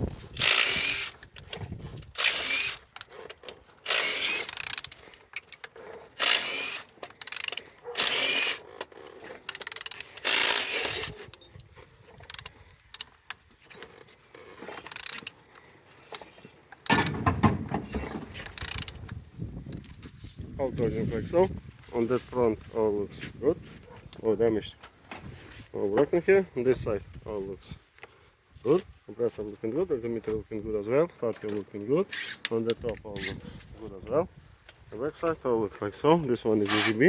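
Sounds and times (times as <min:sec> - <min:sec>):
ratchet turning engine over: 0:00.2 - 0:15.4, 0:16.2 - 0:17.2, 0:17.9 - 0:19.1, 0:36.6 - 0:37.0.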